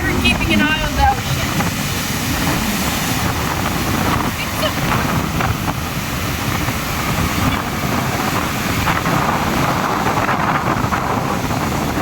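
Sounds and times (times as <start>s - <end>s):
ocean surf rushing: 0.0s - 12.0s
wind buffeting microphone: 0.0s - 12.0s.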